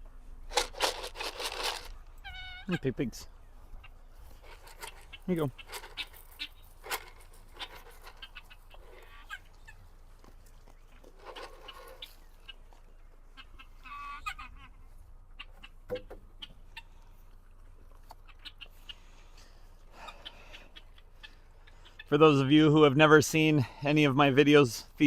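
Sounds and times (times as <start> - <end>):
ducks calling: 0.5 - 22.9.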